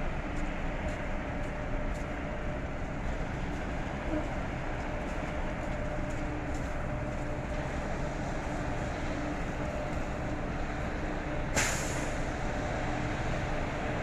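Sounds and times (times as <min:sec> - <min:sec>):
vehicle rumbling: 0:00.0 - 0:14.0
short sharp hiss: 0:11.6 - 0:12.1.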